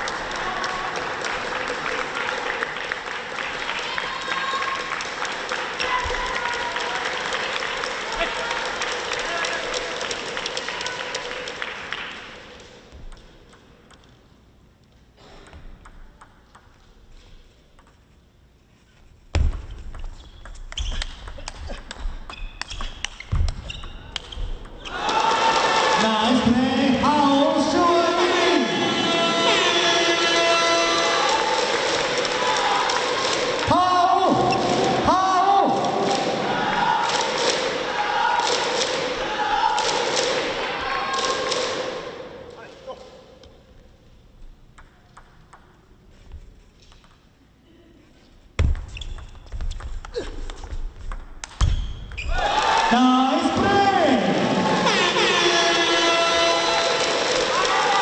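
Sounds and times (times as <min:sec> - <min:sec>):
faint hall noise: 0:00.0 - 0:58.0
table tennis ball bouncing: 0:12.9 - 0:14.2, 0:15.4 - 0:16.9, 0:17.7 - 0:18.0, 0:19.4 - 0:24.9, 0:44.6 - 0:45.9, 0:48.6 - 0:52.3
table tennis ball clicking: 0:13.0 - 0:14.2, 0:44.7 - 0:45.8.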